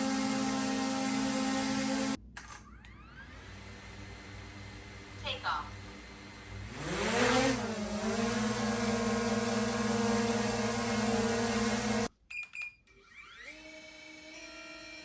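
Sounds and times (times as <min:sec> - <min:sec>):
drone propellers buzzing whine: 0:00.0 - 0:02.2, 0:05.7 - 0:12.1.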